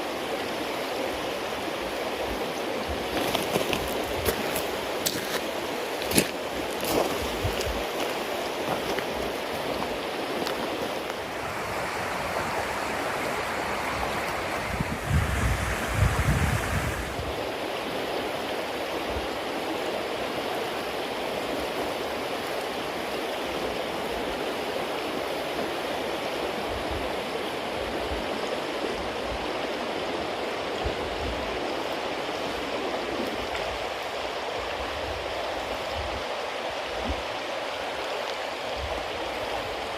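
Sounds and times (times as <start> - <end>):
bonfire hissing and crackling: 0.0 - 19.9.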